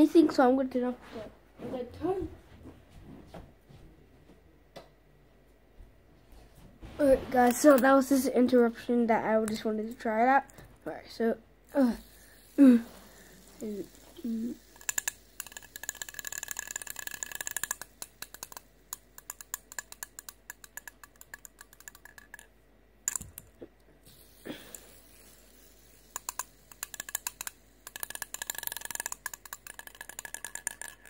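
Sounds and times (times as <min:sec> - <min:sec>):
fidget spinner whirring and clicking: 0:07.0 - 0:31.0.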